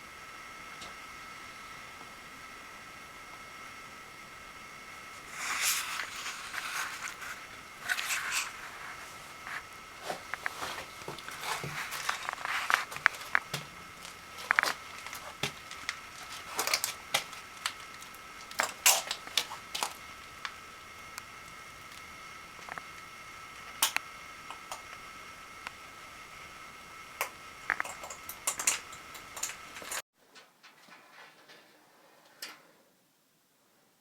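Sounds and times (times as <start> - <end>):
faint high whine: 0.0 - 30.0
rustling and crinkling: 5.2 - 24.0, 27.7 - 32.4.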